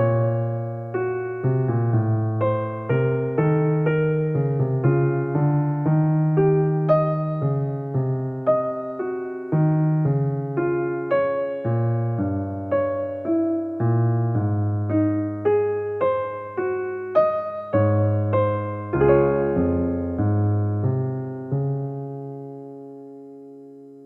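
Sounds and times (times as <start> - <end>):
gentle piano music: 0.0 - 24.0.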